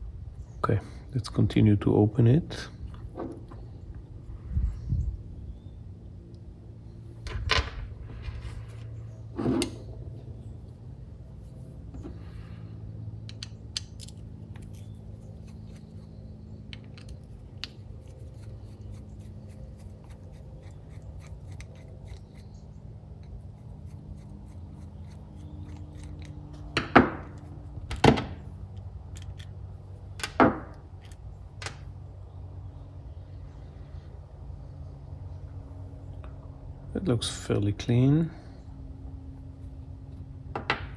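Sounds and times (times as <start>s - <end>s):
steady low hum: 0.0s - 40.9s
tools and metal parts clicking: 13.3s - 15.0s, 28.7s - 29.6s.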